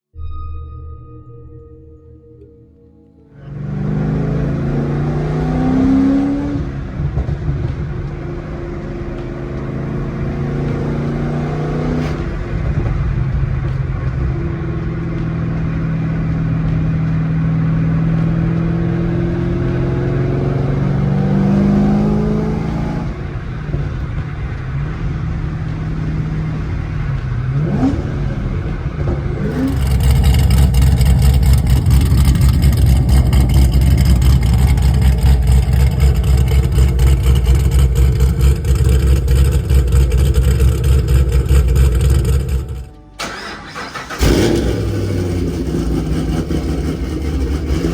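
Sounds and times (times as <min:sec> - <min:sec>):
supercharged car engine revving: 0:03.4 - 0:47.9.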